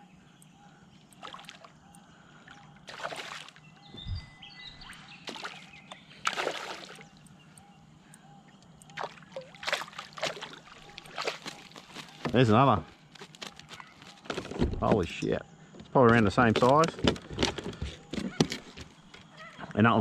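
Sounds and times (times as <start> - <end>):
water splashing and sloshing: 1.1 - 1.8, 2.4 - 7.2, 8.8 - 14.9.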